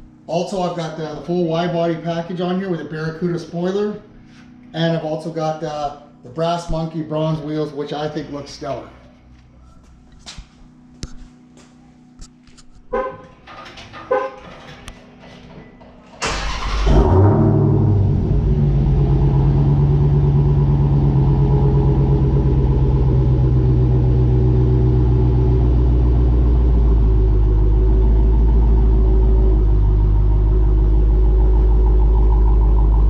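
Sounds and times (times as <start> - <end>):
car engine starting and idling: 15.8 - 33.0.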